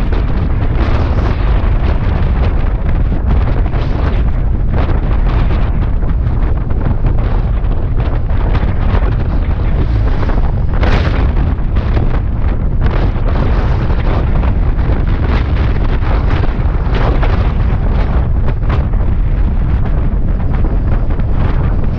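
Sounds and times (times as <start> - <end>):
motorcycle and road rumble: 0.0 - 21.9
wind buffeting microphone: 0.0 - 21.9.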